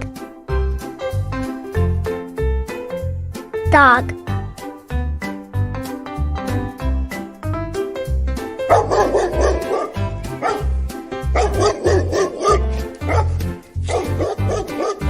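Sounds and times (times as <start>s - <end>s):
cheerful music with steady beat: 0.0s - 15.0s
dog barking: 8.7s - 10.7s, 11.3s - 15.0s.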